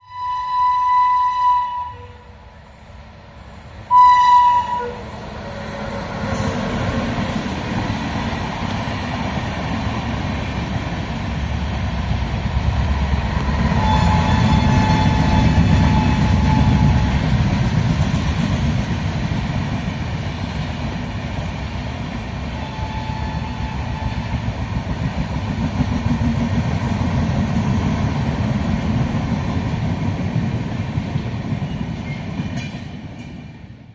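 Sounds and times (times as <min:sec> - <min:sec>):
locomotive horn blast: 0:00.0 - 0:02.4, 0:03.9 - 0:06.6, 0:13.7 - 0:17.2, 0:22.6 - 0:24.3
train rumbling past on rails: 0:00.0 - 0:33.9.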